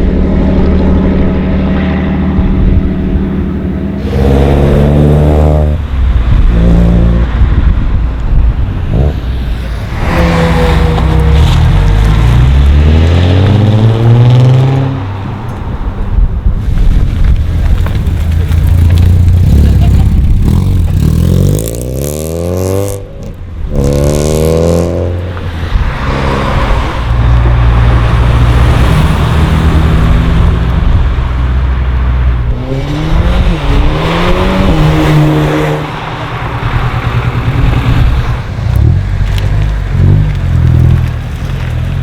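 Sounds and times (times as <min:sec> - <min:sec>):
low engine drone: 0:00.0 - 0:12.6
car engines accelerating: 0:00.0 - 0:42.0.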